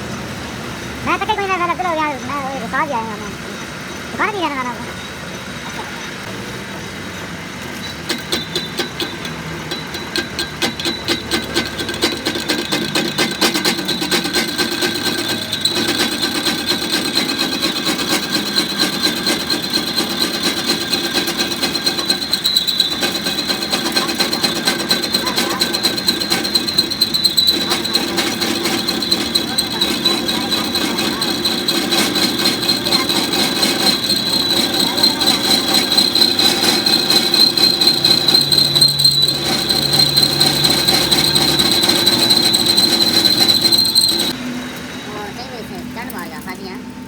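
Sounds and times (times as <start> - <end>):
metallic ringing: 7.8 - 44.4
hammer blows on metal: 8.0 - 44.4.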